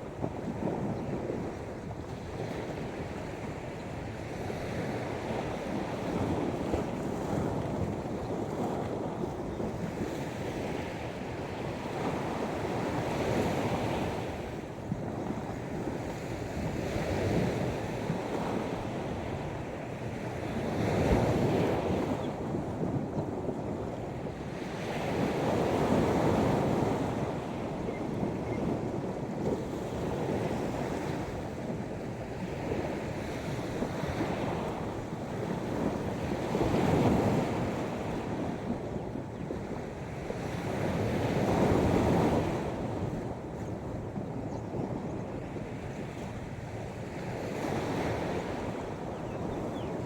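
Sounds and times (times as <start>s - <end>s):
sea waves washing on shore: 0.0s - 50.0s
wind on microphone: 0.0s - 50.0s.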